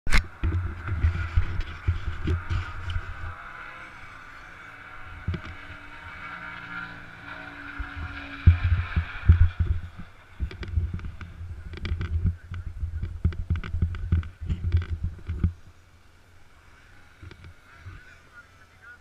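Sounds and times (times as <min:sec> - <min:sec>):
motocross bike engine running: 0:00.1 - 0:18.6
thumps and knocks on camera: 0:07.9 - 0:15.6.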